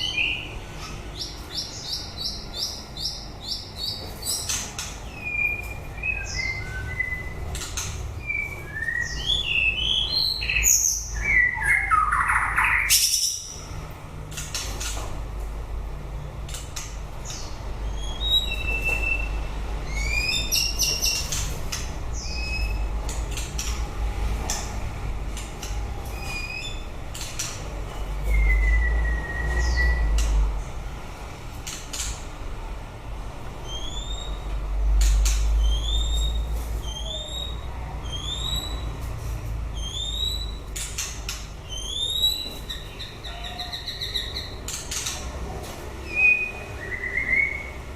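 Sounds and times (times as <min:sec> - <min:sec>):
sharp clicking bird notes: 0:00.0 - 0:13.7, 0:14.3 - 0:15.2, 0:16.4 - 0:19.3, 0:19.9 - 0:28.7, 0:29.6 - 0:30.5, 0:31.6 - 0:32.3, 0:33.8 - 0:39.0, 0:39.8 - 0:45.4
bird singing whistled notes: 0:01.2 - 0:13.6, 0:17.8 - 0:21.4, 0:22.2 - 0:22.9, 0:28.2 - 0:30.2, 0:33.6 - 0:34.4, 0:35.2 - 0:38.9, 0:39.7 - 0:40.6, 0:41.6 - 0:44.6, 0:46.0 - 0:47.8.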